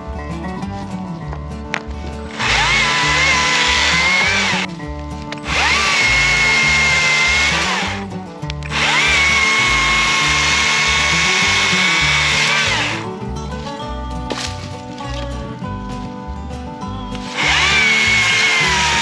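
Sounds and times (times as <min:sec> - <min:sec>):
background music with steady beat: 0:00.0 - 0:19.0
electric drill whining: 0:02.3 - 0:04.7, 0:05.5 - 0:08.0, 0:08.8 - 0:13.0, 0:17.2 - 0:19.0.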